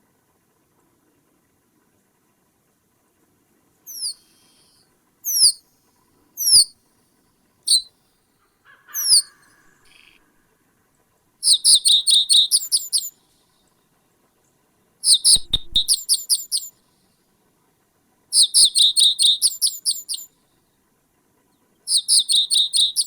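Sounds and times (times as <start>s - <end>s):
bird calling in downward notes: 3.9s - 5.6s, 6.4s - 6.7s, 7.7s - 7.9s, 8.7s - 10.2s, 11.4s - 13.1s, 15.0s - 16.7s, 18.4s - 20.2s, 21.9s - 23.0s.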